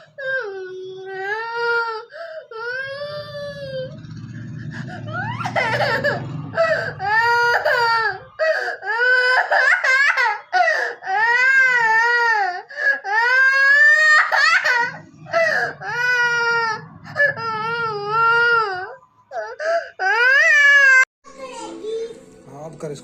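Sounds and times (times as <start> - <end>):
young child crying and wailing: 0.0 - 4.0, 5.0 - 22.2
low hum: 2.8 - 8.4, 13.9 - 19.5.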